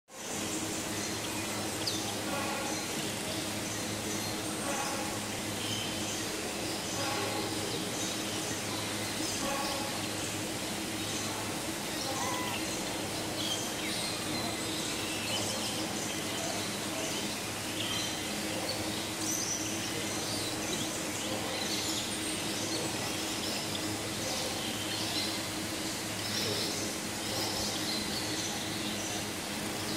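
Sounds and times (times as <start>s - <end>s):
low steady hum: 0.1s - 29.9s
steady hiss: 0.1s - 29.9s
high bird chirps: 12.0s - 12.8s.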